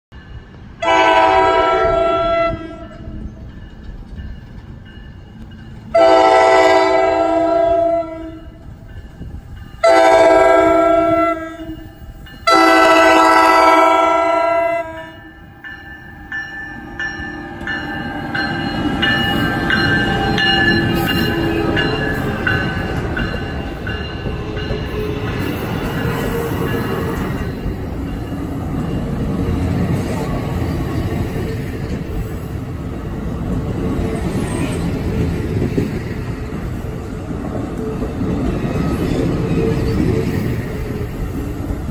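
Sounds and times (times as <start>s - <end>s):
train wheels rumbling on rail: 0.1s - 41.9s
train horn blast: 0.8s - 3.2s, 5.9s - 8.6s, 9.8s - 11.8s, 12.4s - 15.3s
crossing bell dinging: 2.8s - 32.5s.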